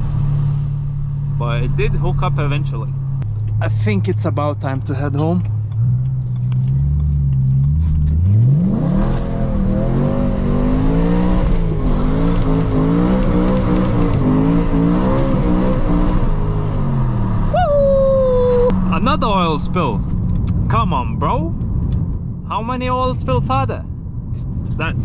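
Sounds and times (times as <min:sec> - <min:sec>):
car engine revving: 0:00.0 - 0:17.6.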